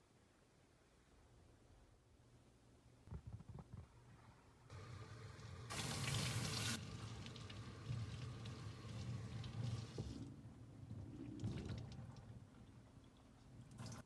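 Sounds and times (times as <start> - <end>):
water running from a tap: 4.8 - 10.2.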